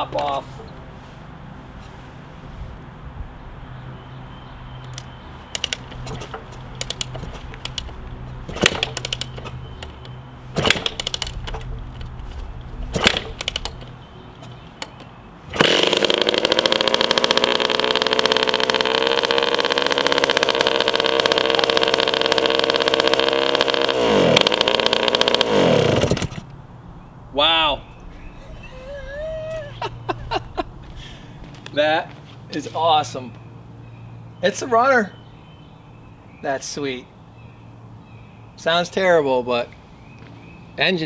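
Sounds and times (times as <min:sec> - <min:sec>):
dirt bike engine kick starting: 0:04.8 - 0:26.6
dirt bike engine running: 0:04.9 - 0:26.5.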